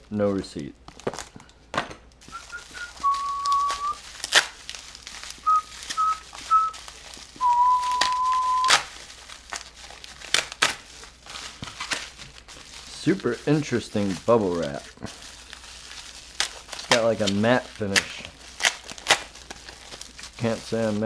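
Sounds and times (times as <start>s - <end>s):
packaging crinkling: 0.0s - 21.0s
paper and plastic rustling: 0.0s - 21.0s
person whistling: 2.3s - 4.0s, 5.4s - 6.8s, 7.4s - 8.8s.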